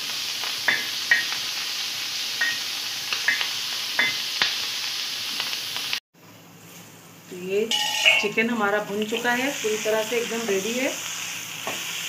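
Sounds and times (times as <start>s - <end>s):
vegetables sizzling on griddle: 0.0s - 6.0s, 7.7s - 12.0s
metal spatula scraping pan: 7.7s - 8.4s.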